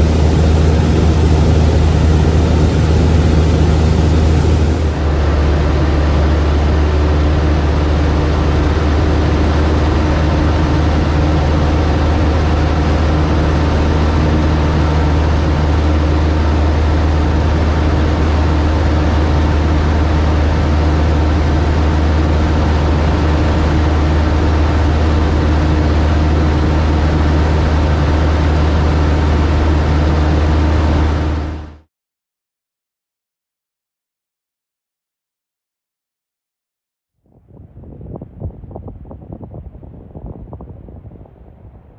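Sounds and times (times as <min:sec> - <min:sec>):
light aircraft engine in flight: 0:00.0 - 0:31.8.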